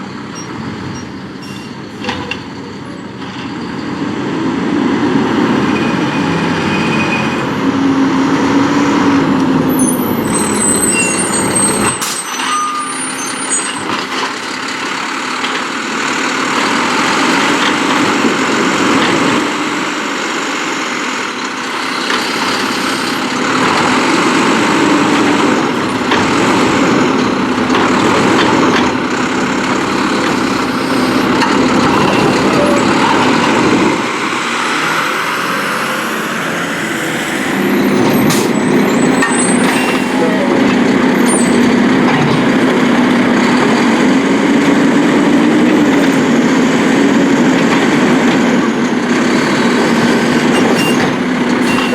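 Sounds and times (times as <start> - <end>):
garbage truck engine rumble: 0.0 - 51.9
loud hydraulic hissing: 21.6 - 27.6, 28.9 - 40.7.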